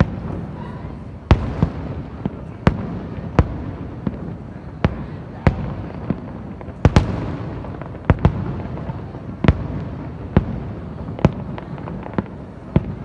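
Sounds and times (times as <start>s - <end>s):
low rumble of explosions: 0.0s - 13.0s.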